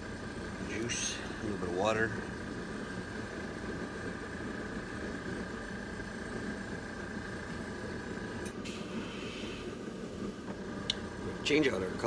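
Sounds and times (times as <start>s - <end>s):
airbrush hissing air: 8.7s - 9.8s.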